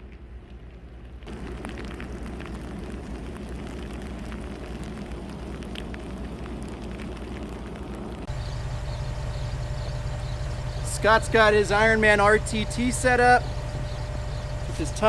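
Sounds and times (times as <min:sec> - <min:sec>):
ticks of blowing snow: 0:08.3 - 0:15.0.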